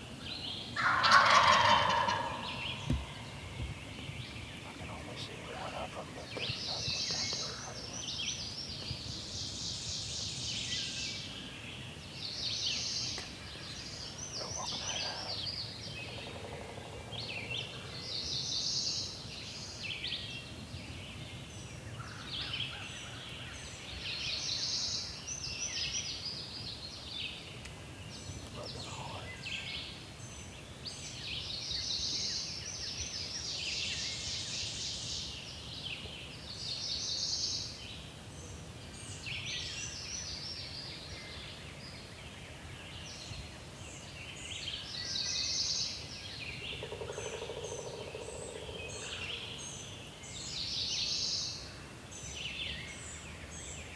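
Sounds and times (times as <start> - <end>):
songbirds singing: 0.0 - 53.9
turkeys gobbling: 0.8 - 3.3
steady background hush: 2.0 - 9.0.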